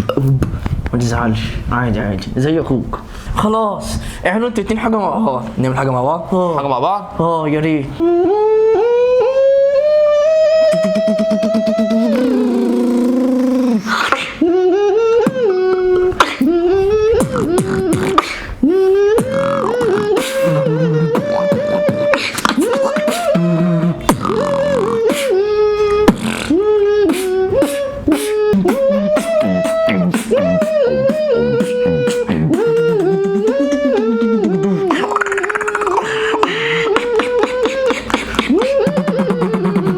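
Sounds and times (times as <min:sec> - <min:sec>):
hummed melody: 0:08.0 - 0:39.9
beatboxing snare and click beats: 0:10.5 - 0:14.4, 0:15.2 - 0:39.9.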